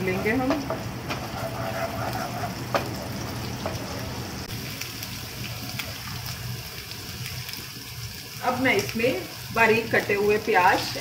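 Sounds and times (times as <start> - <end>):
wooden spoon stirring: 0.0 - 3.9
paste sizzling in hot oil: 0.0 - 11.0
spoon knocking on pan: 0.1 - 3.0.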